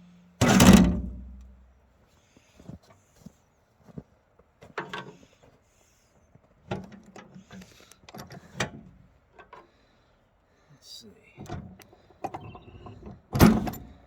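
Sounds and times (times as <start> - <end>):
knocks clunks and scrapes of handling: 3.9 - 5.5.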